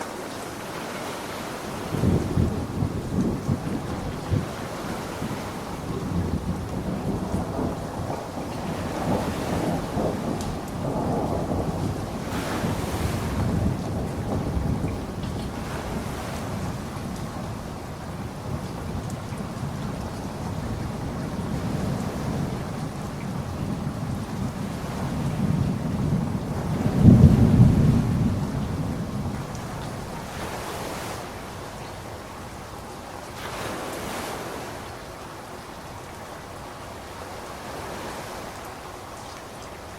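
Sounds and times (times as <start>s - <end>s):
rain falling: 0.0s - 39.9s
thunder rumble: 1.8s - 31.6s
water drip ticks: 29.4s - 29.9s.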